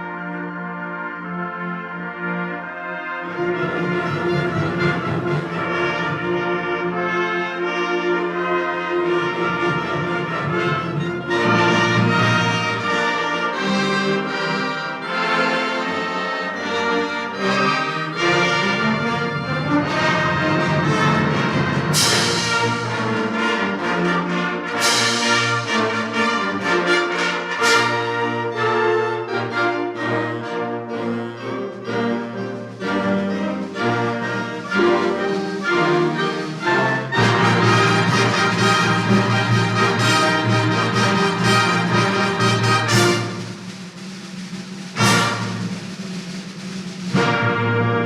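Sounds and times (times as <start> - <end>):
concert band playing: 1.3 - 48.0.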